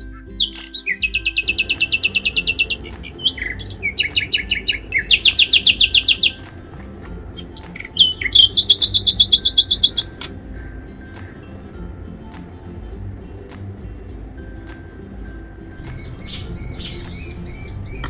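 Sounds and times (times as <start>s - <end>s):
bird chirping in fast trills: 0.0s - 11.5s, 15.7s - 18.0s.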